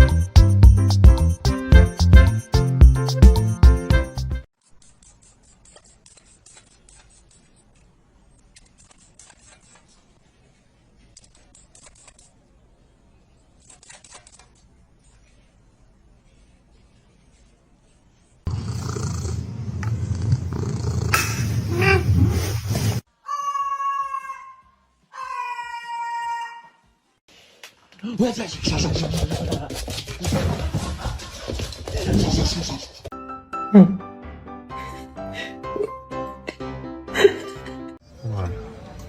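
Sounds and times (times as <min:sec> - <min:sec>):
cat purring loudly: 0:18.5 - 0:22.4.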